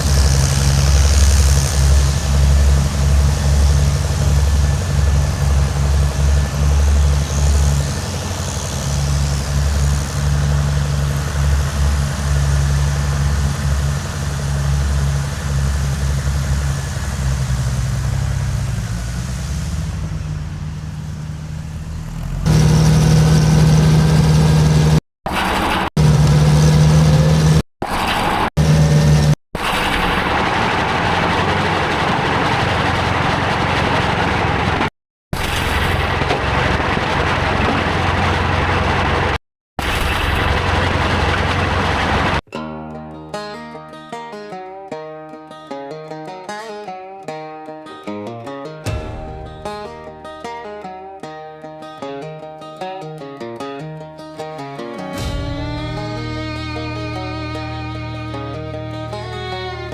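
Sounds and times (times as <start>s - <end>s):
engine running with pulsing note: 0.0s - 42.4s, 55.2s - 59.9s.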